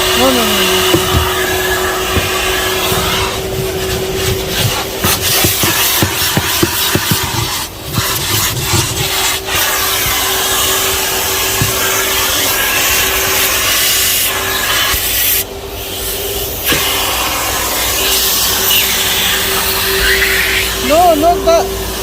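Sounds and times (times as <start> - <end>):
vacuum cleaner motor hum: 0.0 - 14.8
nozzle rubbing and knocking: 0.0 - 15.0, 16.6 - 20.2.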